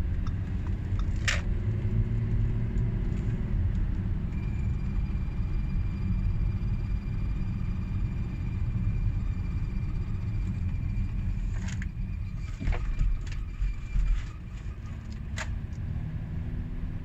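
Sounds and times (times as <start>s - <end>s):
vehicle rumbling: 0.0s - 17.0s
vehicle body creaks and knocks: 10.5s - 15.5s.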